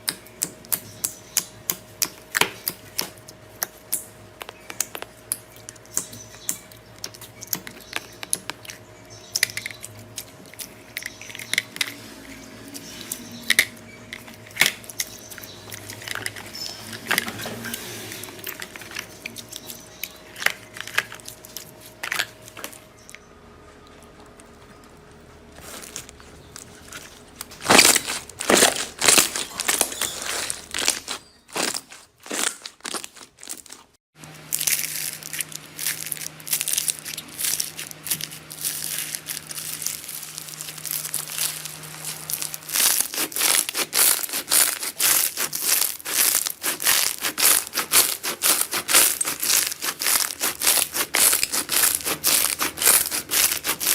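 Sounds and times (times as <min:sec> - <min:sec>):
hands squishing slime: 0:34.6 - 0:53.9.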